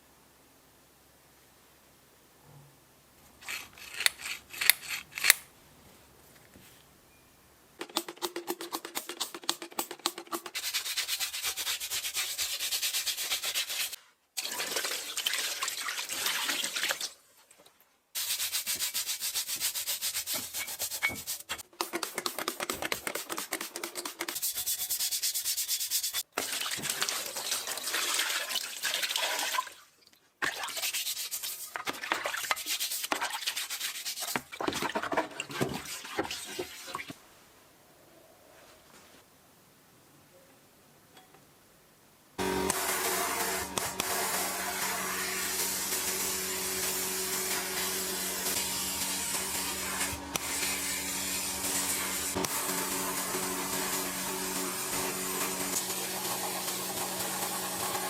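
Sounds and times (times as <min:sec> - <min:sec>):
abrasive rubbing on metal: 0:03.4 - 0:05.5.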